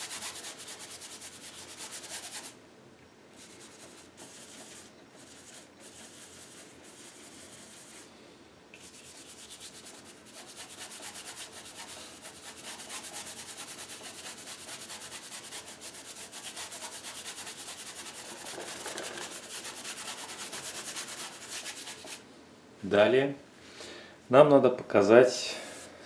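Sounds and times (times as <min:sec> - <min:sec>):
paintbrush scrubbing: 0:00.0 - 0:02.6, 0:03.4 - 0:08.0, 0:08.8 - 0:22.2.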